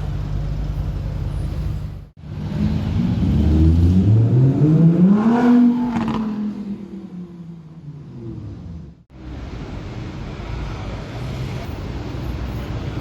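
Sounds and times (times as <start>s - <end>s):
sports car engine rumbling: 0.0s - 13.0s
car accelerating hard: 2.3s - 7.2s.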